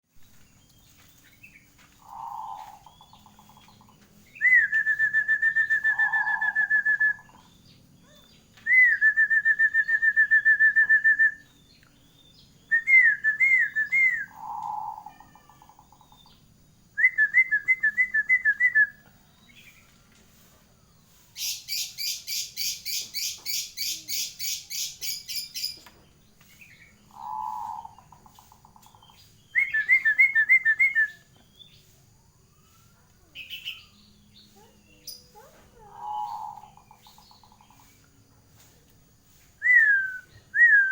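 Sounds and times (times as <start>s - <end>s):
dove cooing: 2.0s - 3.5s, 14.3s - 15.7s, 27.1s - 28.6s, 35.4s - 37.6s.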